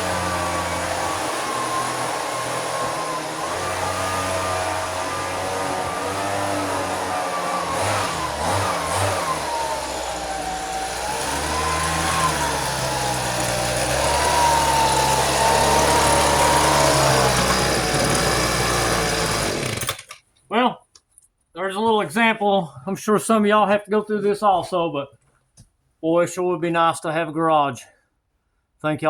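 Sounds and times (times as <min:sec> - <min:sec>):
leaf blower engine running: 0:00.0 - 0:20.2.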